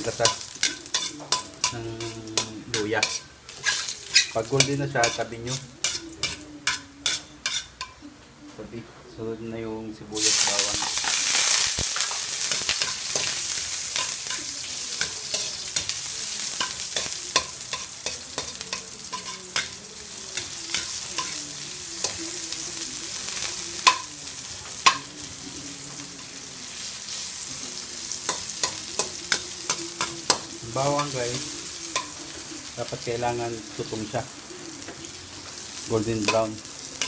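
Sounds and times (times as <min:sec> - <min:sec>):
food sizzling in hot oil: 0:00.0 - 0:08.0, 0:10.2 - 0:37.0.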